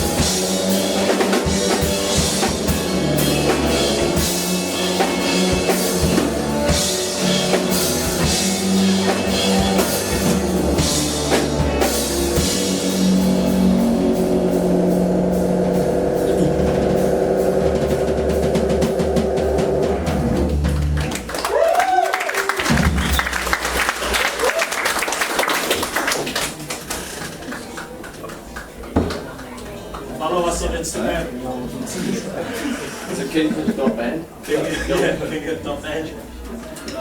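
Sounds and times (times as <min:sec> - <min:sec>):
live rock band: 0:00.0 - 0:21.6
drum kit: 0:00.0 - 0:26.2.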